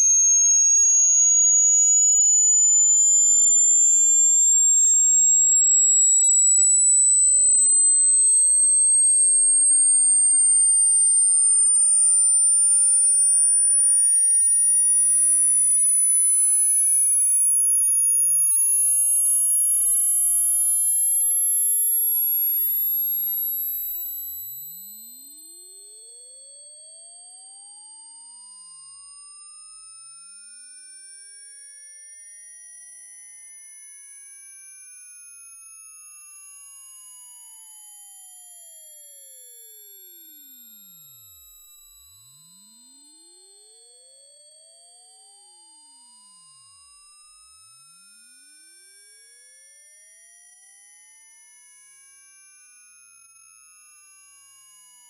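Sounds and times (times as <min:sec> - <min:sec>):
rising electronic sine tone: 0:00.0 - 0:17.1, 0:23.5 - 0:37.8, 0:39.0 - 0:49.4.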